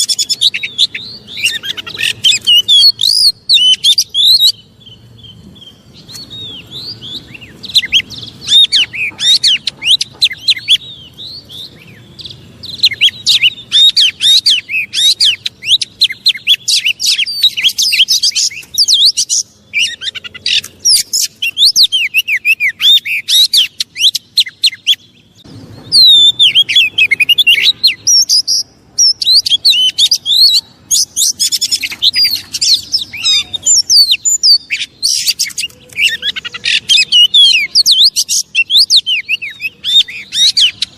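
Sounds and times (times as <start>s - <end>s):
bird singing rapid whistles: 0.0s - 40.9s.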